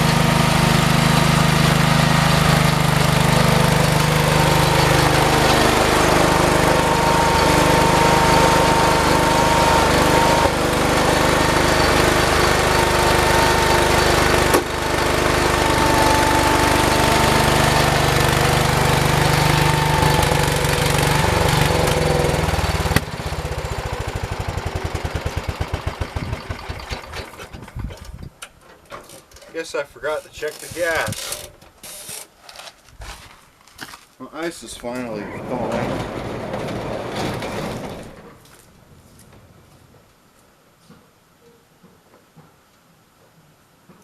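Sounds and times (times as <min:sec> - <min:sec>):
tractor engine running and sputtering: 0:00.0 - 0:28.4, 0:35.2 - 0:38.7.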